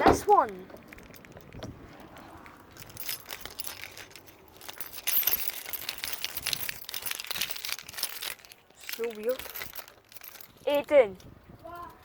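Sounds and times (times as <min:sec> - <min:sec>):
car keys jangling: 0:00.7 - 0:10.8.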